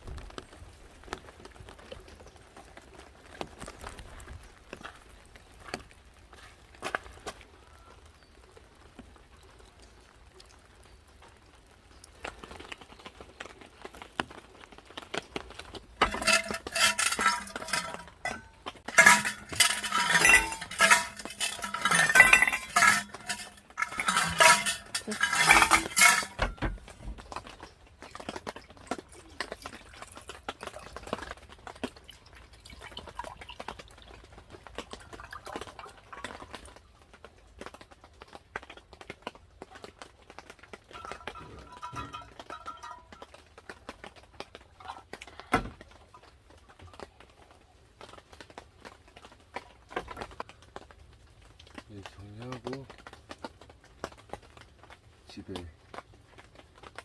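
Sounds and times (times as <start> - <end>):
dishes and cutlery clattering: 16.0 - 27.0, 41.0 - 43.2.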